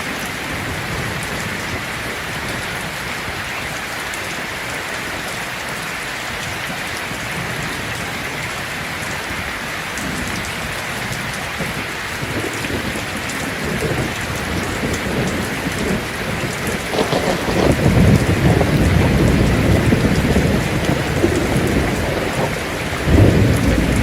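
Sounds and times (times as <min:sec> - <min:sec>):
heavy rain on a tin roof: 0:00.0 - 0:24.0
low thunder rumble: 0:10.0 - 0:24.0.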